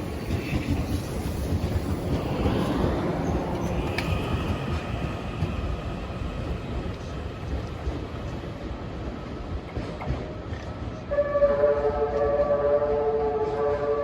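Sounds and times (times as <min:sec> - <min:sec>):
wheels clicking over rail joints: 0:00.0 - 0:11.0
train rumbling: 0:00.0 - 0:14.0
train horn: 0:11.1 - 0:14.0.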